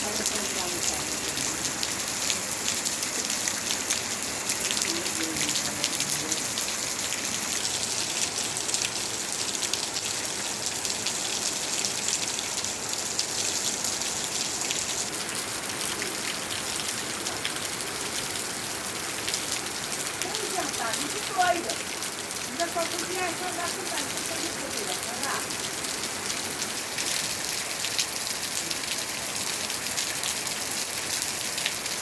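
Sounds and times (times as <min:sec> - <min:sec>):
rain on hard surfaces: 0:00.0 - 0:32.0.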